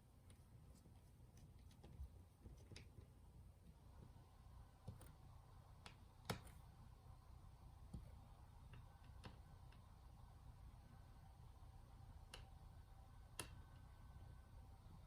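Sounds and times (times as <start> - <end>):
faint clicks and taps: 0.2 - 4.2, 4.8 - 6.6, 7.8 - 9.9, 12.2 - 12.6, 13.3 - 13.9.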